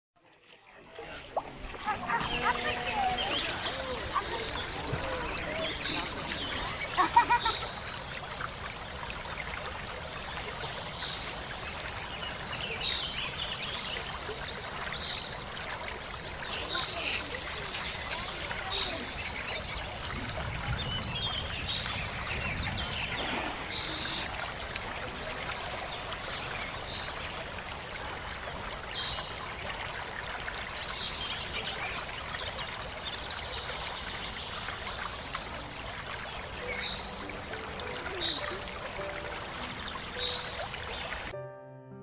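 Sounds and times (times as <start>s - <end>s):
stream splashing over rocks: 0.2s - 41.4s.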